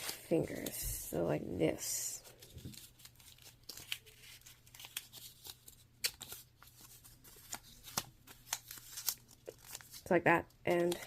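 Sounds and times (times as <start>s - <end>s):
paper rustling and crinkling: 2.2s - 10.1s.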